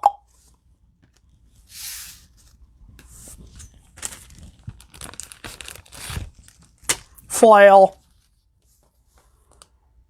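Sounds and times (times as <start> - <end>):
foil wrapper tearing and crinkling: 3.5 - 7.3.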